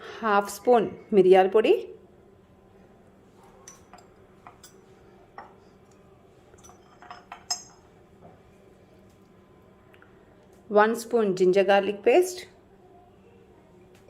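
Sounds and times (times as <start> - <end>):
metal spoon clinking on dishes: 3.5 - 7.9.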